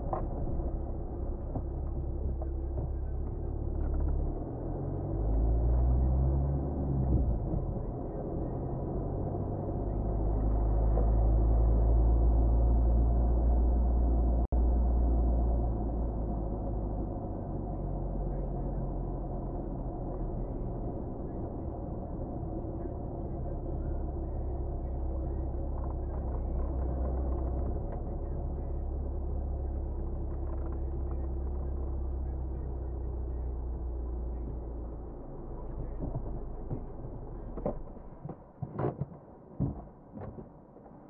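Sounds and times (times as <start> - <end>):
car engine running: 0.0 - 38.6
sharp clicks and knocks: 37.5 - 41.0.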